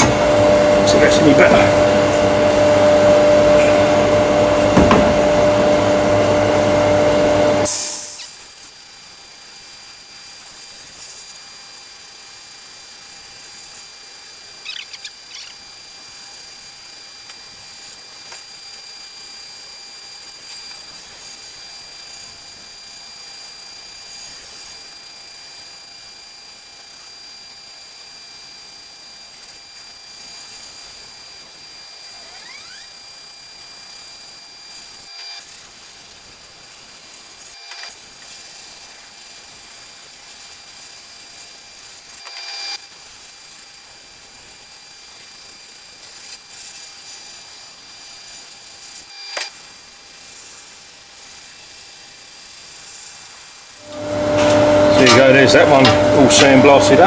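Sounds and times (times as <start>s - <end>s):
high whine: 0.0s - 8.3s, 53.8s - 57.0s
abrasive blasting hiss on metal: 6.6s - 8.8s, 42.9s - 57.0s.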